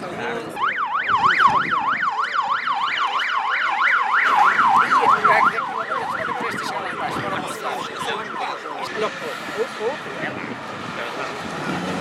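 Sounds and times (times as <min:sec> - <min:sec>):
electronic siren yelping: 0:00.5 - 0:08.8.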